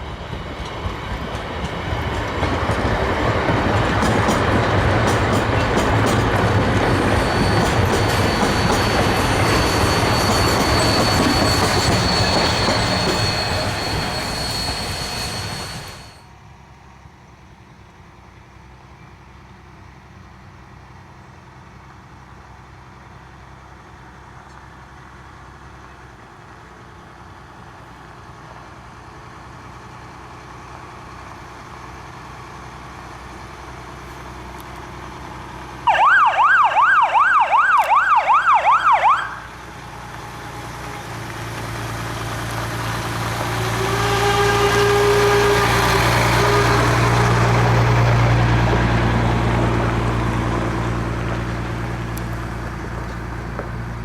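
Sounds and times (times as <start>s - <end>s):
steam train running: 0.0s - 16.3s, 39.4s - 54.0s
high squeal: 4.3s - 16.3s, 39.5s - 49.4s
siren yelping: 35.9s - 39.5s.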